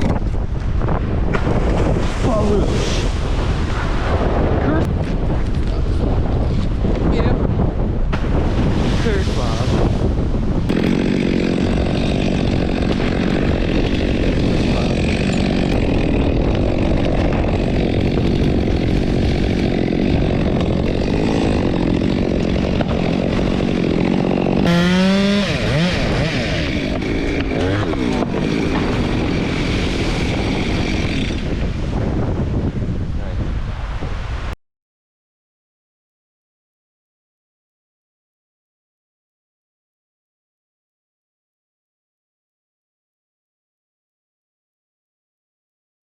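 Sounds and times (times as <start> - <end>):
chainsaw engine running: 10.7 - 31.6.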